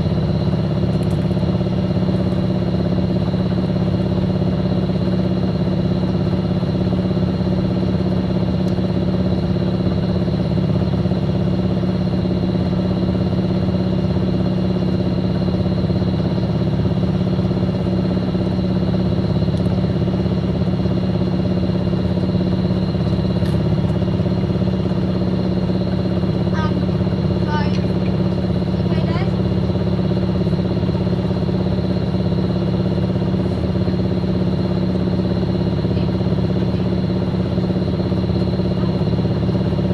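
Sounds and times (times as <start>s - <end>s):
washing machine humming: 0.0s - 39.9s.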